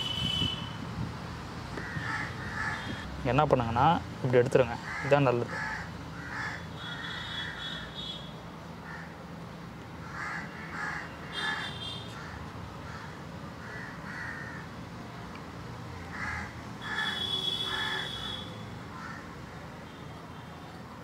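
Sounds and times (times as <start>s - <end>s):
birds calling: 1.8s - 3.1s.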